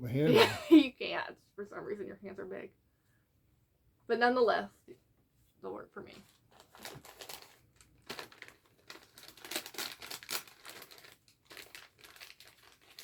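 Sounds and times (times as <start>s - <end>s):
wrapping paper crinkling: 6.1s - 13.0s.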